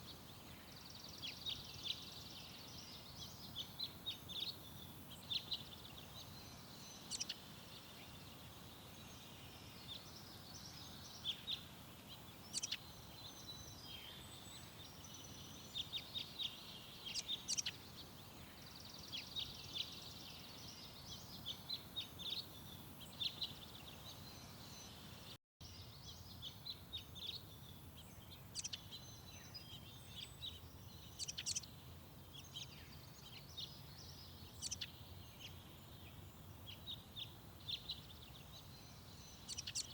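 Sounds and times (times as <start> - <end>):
songbirds chirping and calling: 0.0 - 39.9.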